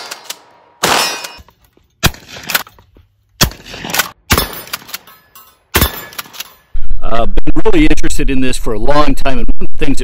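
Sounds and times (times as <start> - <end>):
metallic clanks: 4.4 - 6.7.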